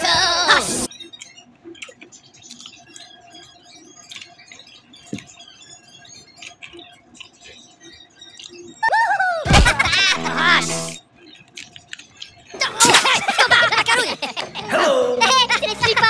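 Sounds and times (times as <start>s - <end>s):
wet chewing mouth noises: 1.7s - 3.0s.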